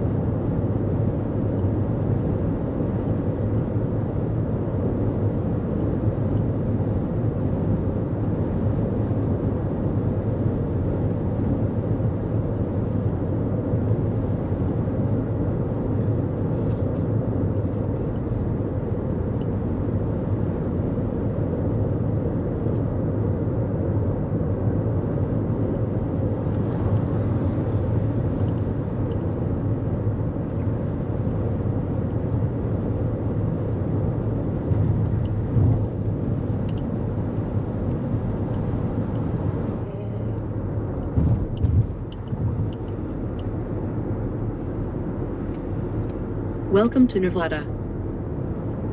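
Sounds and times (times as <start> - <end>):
car road and tyre noise: 0.0 - 48.9.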